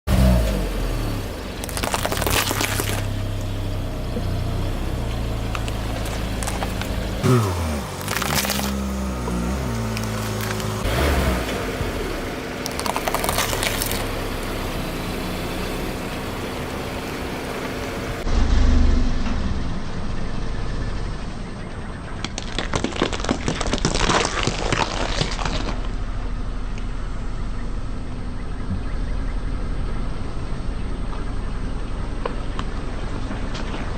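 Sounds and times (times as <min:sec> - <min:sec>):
car engine hum: 0:00.0 - 0:22.7, 0:25.4 - 0:33.9
tyre crushing something brittle: 0:01.6 - 0:03.1, 0:05.6 - 0:09.1, 0:12.6 - 0:14.1, 0:22.2 - 0:26.0.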